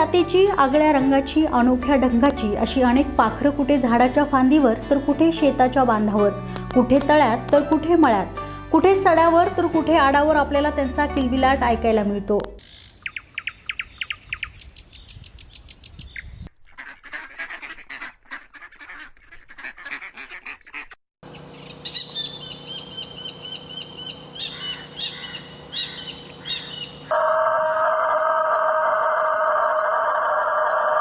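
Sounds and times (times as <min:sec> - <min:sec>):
birds chirping: 0:12.6 - 0:16.5, 0:20.7 - 0:27.1
fast bird trill: 0:12.6 - 0:16.5
repeated bird calls: 0:12.6 - 0:27.2.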